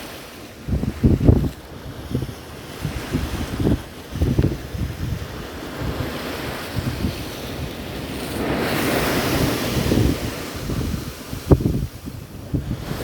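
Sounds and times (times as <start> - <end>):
sea waves splashing: 0.0 - 13.0
wind buffeting microphone: 0.4 - 13.0.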